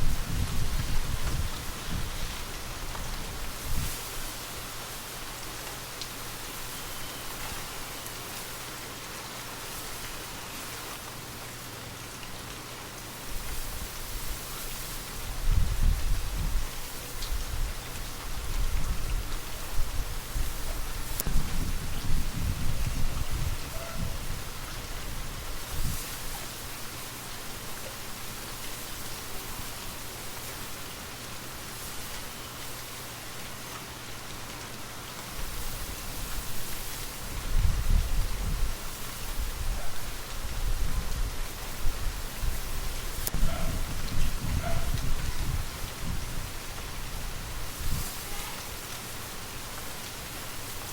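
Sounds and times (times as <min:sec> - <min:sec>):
low wind gust: 0:00.0 - 0:05.1, 0:13.4 - 0:26.7, 0:35.4 - 0:50.8
gentle rain patter: 0:00.0 - 0:50.9.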